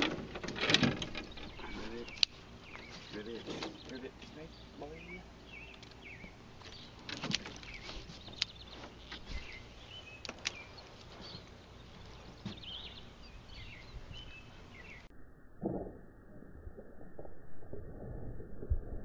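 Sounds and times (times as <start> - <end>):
sharp clicks: 0.0 - 2.9
small birds chirping: 1.0 - 15.1.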